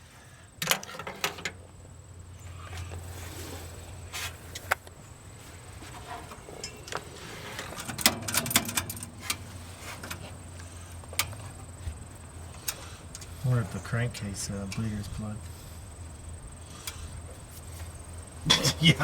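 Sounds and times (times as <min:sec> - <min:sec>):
low steady hum: 0:00.0 - 0:19.0
sharp clicks and knocks: 0:05.9 - 0:09.4.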